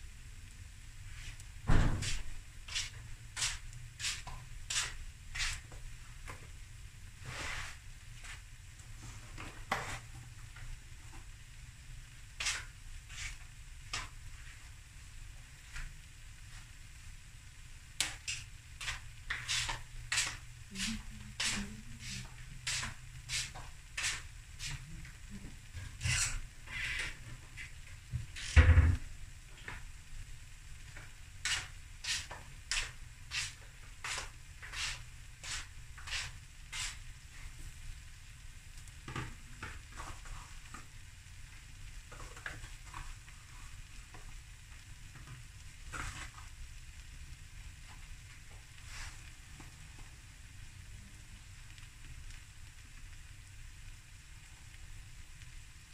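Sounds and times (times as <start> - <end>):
rice frying faint sizzle: 0.0 - 55.9
heavy thump: 1.6 - 2.2, 28.6 - 29.0.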